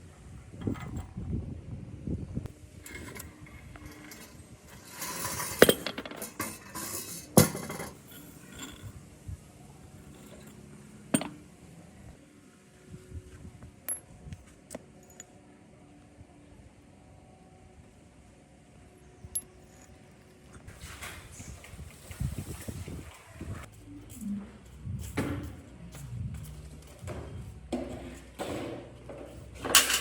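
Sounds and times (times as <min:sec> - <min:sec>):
metal parts clinking and rattling: 0:02.8 - 0:09.0, 0:10.0 - 0:11.4, 0:13.8 - 0:14.1, 0:15.0 - 0:15.4, 0:19.2 - 0:20.6, 0:29.6 - 0:30.0.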